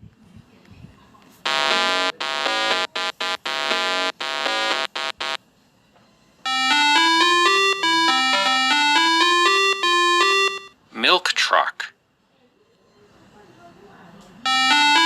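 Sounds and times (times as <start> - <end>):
electronic buzzer pulses: 1.5 - 5.4, 6.5 - 10.7
electronic chime melody: 6.5 - 10.7.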